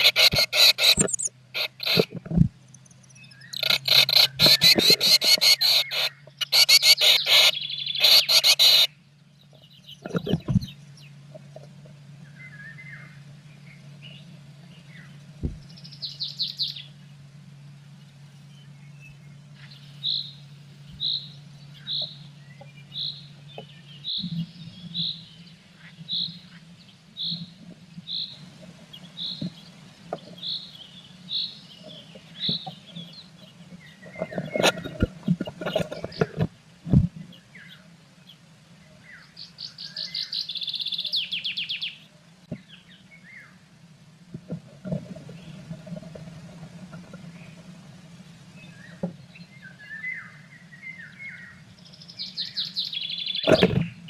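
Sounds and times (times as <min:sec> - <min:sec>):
bird harsh chirping: 0:00.0 - 0:02.1, 0:03.1 - 0:08.9
steady low hum: 0:00.0 - 0:54.0.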